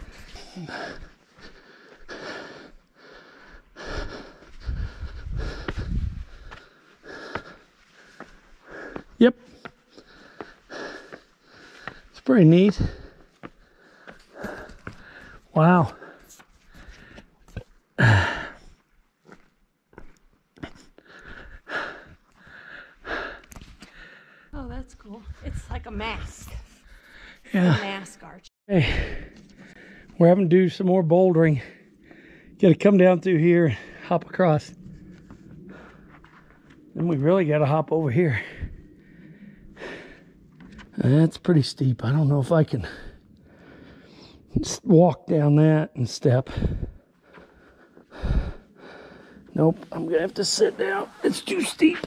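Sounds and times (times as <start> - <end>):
person breathing hard: 0.0 - 17.3, 18.0 - 19.4, 20.0 - 24.5, 38.4 - 40.8, 42.8 - 44.5, 46.5 - 49.9
low rumble on microphone: 4.6 - 6.5.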